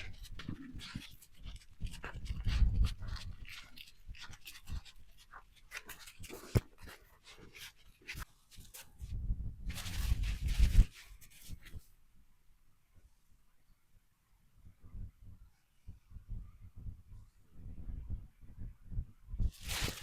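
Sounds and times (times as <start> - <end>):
scratchy rustles and clicks: 0.0 - 11.9, 19.5 - 20.0.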